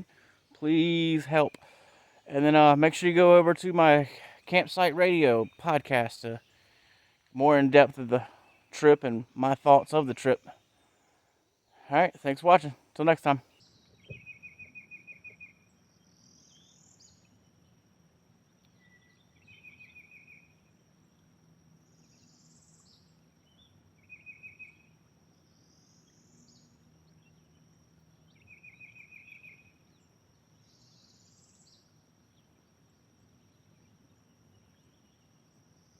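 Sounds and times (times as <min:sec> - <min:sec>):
insects droning: 0:00.0 - 0:35.9
insect trills: 0:13.0 - 0:35.9.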